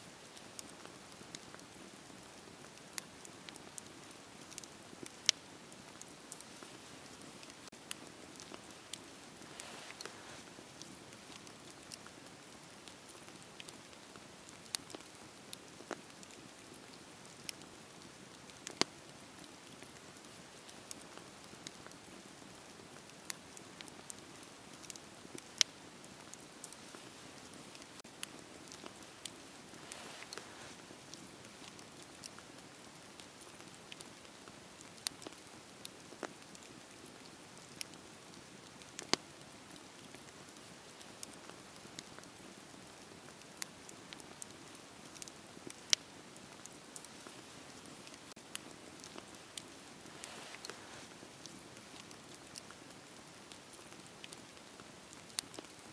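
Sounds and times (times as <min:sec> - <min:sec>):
soft steady fire hiss: 0:00.0 - 0:55.9
wood fire crackling and popping: 0:00.0 - 0:55.9.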